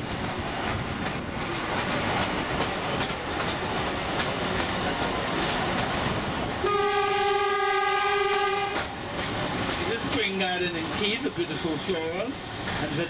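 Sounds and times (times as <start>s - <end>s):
train rumbling: 0.0s - 13.0s
wheels clicking over rail joints: 0.0s - 13.0s
train horn long blast: 6.6s - 8.9s.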